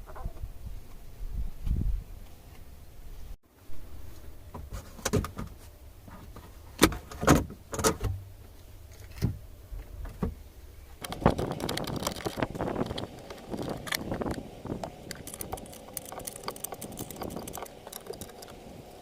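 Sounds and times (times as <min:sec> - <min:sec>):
tools clicking and clanking: 0:11.0 - 0:19.0.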